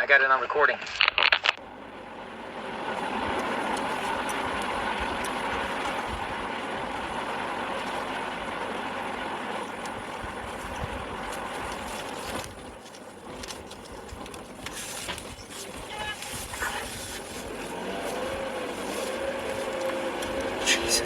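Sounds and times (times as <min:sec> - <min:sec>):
scattered clicks: 0:00.8 - 0:01.6
vehicle road and engine noise: 0:01.5 - 0:21.0.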